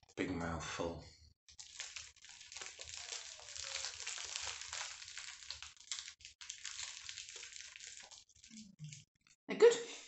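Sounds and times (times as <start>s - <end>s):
person chewing cake: 1.5s - 9.4s.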